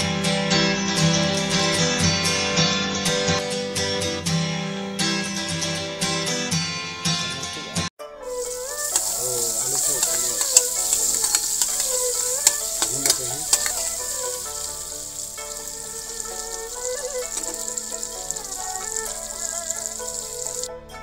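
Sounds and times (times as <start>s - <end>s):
potatoes sizzling in a pan: 8.3s - 20.7s.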